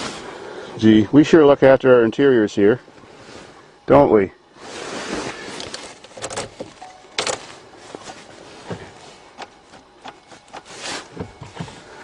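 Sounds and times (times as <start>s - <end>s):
clicks and knocks of handling: 5.6s - 11.7s.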